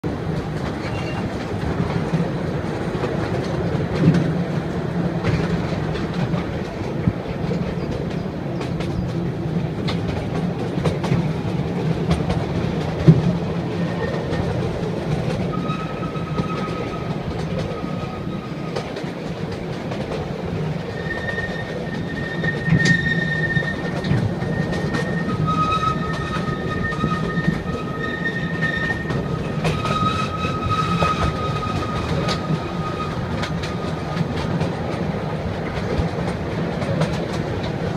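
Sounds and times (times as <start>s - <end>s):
train rumbling on track: 0.0s - 37.9s
wheels clacking: 0.1s - 37.9s
high wheel squeal: 0.8s - 1.3s, 15.4s - 18.7s, 20.9s - 34.0s.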